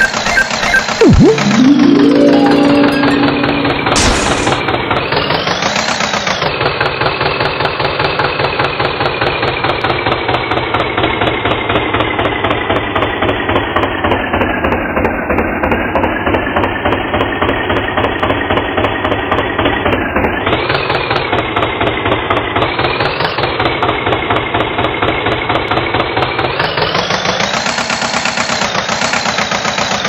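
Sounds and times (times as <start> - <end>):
tractor engine chugging: 27.2 - 30.0.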